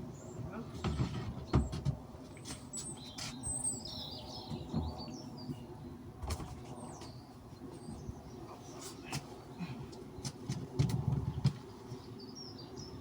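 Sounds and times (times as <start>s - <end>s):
bird chirping: 2.7s - 5.7s, 11.3s - 13.0s.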